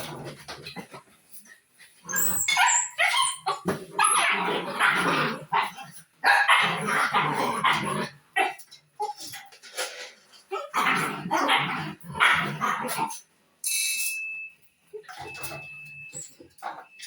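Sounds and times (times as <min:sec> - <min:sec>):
dog barking and yipping: 0:02.1 - 0:09.2.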